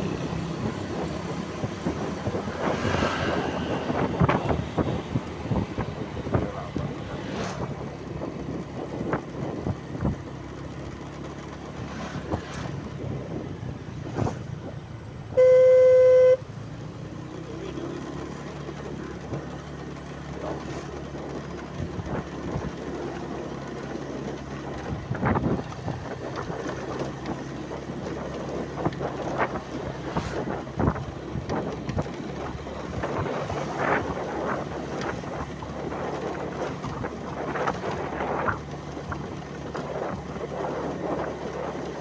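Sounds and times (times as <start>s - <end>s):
vehicle engine humming: 0.0s - 42.0s
horn honk: 15.3s - 16.5s.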